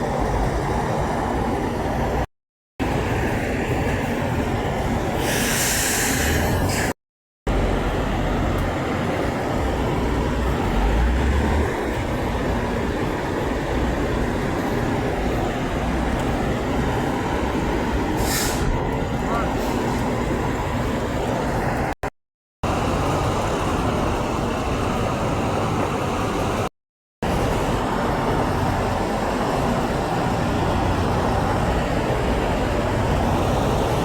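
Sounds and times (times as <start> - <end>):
trucks passing by: 0.0 - 22.1, 22.7 - 34.0
engines and tyres rumbling: 0.0 - 34.0
air brake hiss: 5.2 - 7.0, 18.2 - 18.8.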